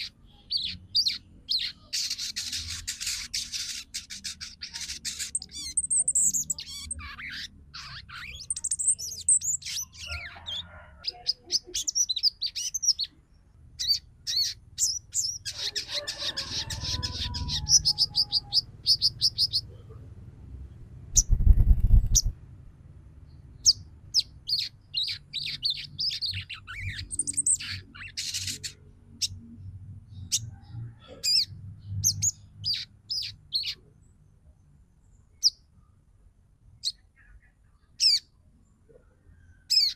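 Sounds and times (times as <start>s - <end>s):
bird chirps and chattering trills: 0.0s - 13.2s, 13.8s - 19.8s, 21.2s - 22.4s, 23.6s - 29.4s, 31.1s - 33.8s, 36.8s - 38.3s, 39.7s - 39.9s.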